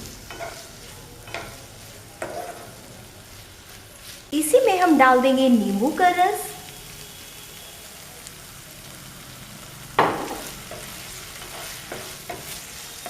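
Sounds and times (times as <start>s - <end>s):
vegetables sizzling in a pan: 0.0s - 13.0s
spatula scraping a pan: 0.2s - 4.3s, 10.3s - 13.0s.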